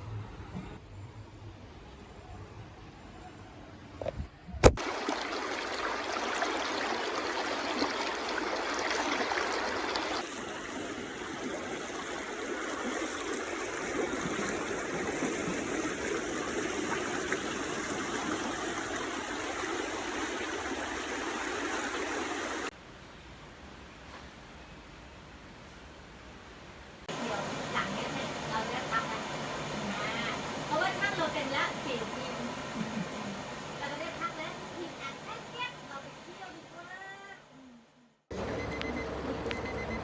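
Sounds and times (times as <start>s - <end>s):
stream water rushing: 4.7s - 22.7s, 27.1s - 37.2s.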